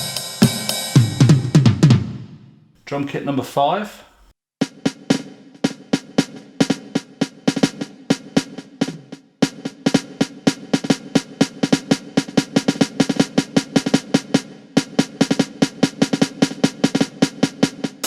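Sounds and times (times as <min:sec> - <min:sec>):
electronic drum hits: 0:00.0 - 0:02.2.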